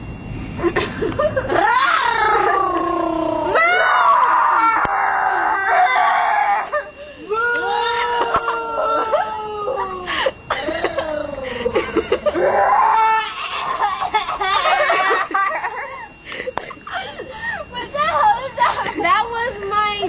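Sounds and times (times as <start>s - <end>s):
people making wailing animal cries: 1.5s - 16.1s.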